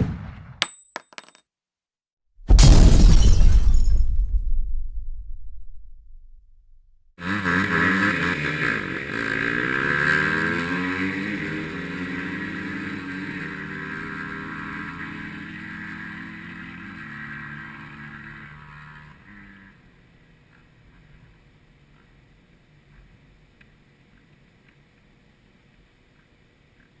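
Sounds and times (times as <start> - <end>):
dirt bikes accelerating: 7.2 - 20.0.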